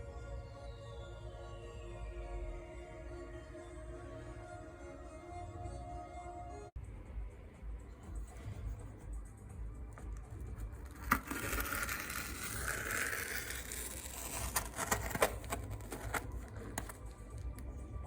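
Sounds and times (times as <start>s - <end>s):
scraping and rustling: 10.5s - 17.6s.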